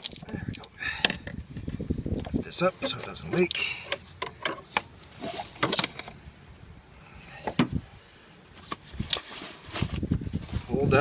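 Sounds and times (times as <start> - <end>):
hands and tools clicking and knocking: 2.2 - 4.9.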